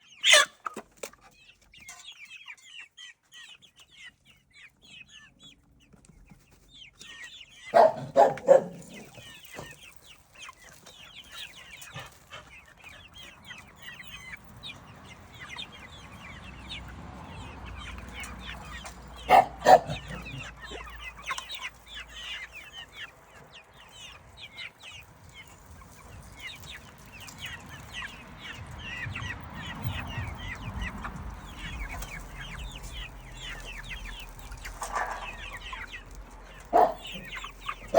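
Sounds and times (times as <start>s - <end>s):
chickens clucking: 0.0s - 37.9s
loud chicken calls: 0.1s - 0.8s, 7.6s - 9.8s, 15.2s - 22.7s, 28.8s - 37.9s.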